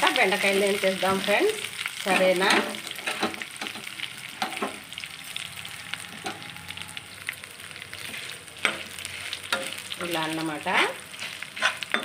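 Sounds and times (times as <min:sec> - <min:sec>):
spices sizzling in oil: 0:00.0 - 0:12.0
metal spatula stirring: 0:08.0 - 0:12.0.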